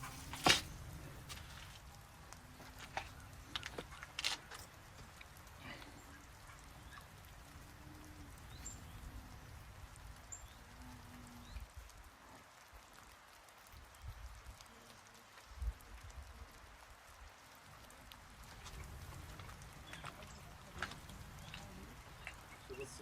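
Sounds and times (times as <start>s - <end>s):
light hiss: 0.0s - 23.0s
wind rumble on microphone: 13.8s - 14.6s, 15.5s - 17.2s.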